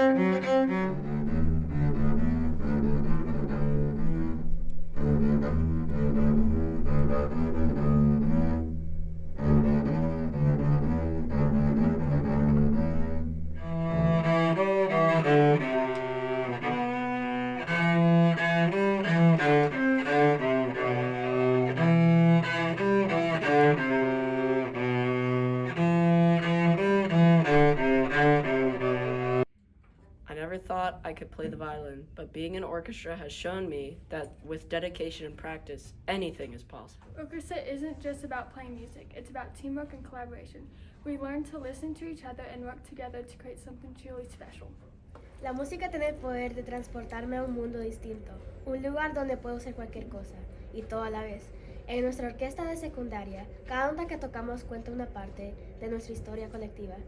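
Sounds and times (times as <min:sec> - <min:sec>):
cello and double bass: 0:00.0 - 0:29.5.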